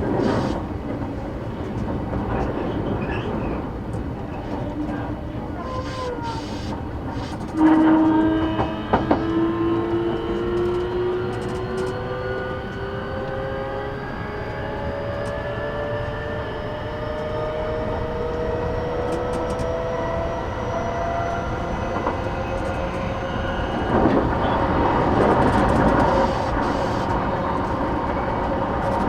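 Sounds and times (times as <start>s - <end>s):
traction motors whining: 0.0s - 29.0s
wheels rumbling on rail: 0.0s - 29.0s
rushing noise: 23.3s - 27.7s.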